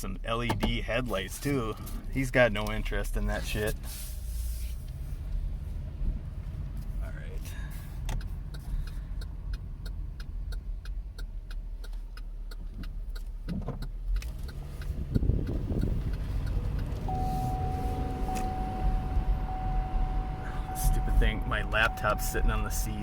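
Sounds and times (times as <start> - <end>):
engine and road rumble: 0.0 - 23.0
regular ticking: 4.9 - 23.0
steady warning chime tone: 17.1 - 23.0.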